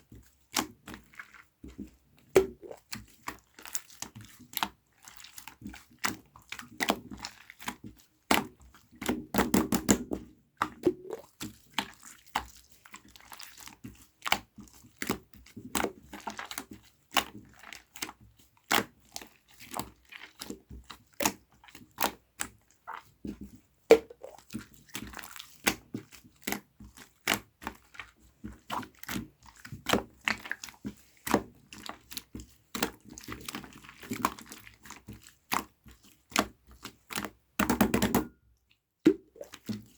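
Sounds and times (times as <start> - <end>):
slime squeezed by hand popping: 23.9 - 24.4.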